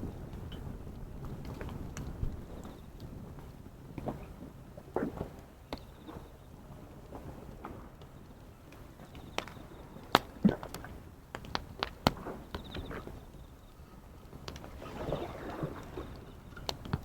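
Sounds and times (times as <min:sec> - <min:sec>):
waves washing: 0:14.0 - 0:17.0.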